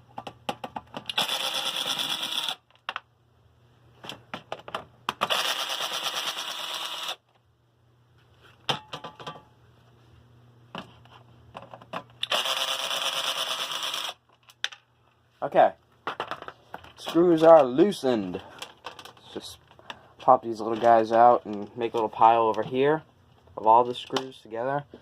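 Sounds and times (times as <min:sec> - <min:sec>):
cordless drill running: 0:01.1 - 0:02.6, 0:05.3 - 0:07.2, 0:12.2 - 0:14.2.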